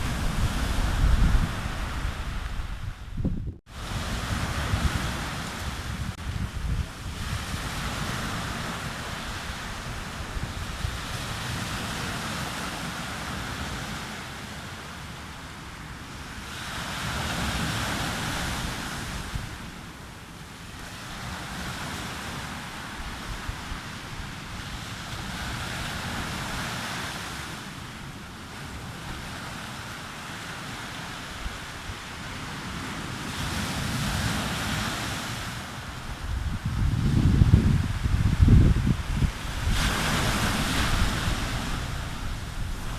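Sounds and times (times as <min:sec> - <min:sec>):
sea waves breaking on beach: 0:00.0 - 0:03.0, 0:03.7 - 0:42.9
wind buffeting microphone: 0:00.0 - 0:12.7, 0:35.9 - 0:42.9.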